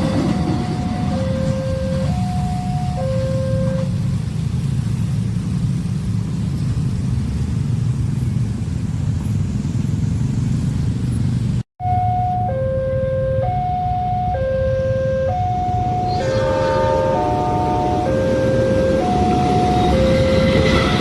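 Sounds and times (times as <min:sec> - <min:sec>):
level crossing two-tone alarm: 0:00.0 - 0:03.9, 0:11.8 - 0:21.0.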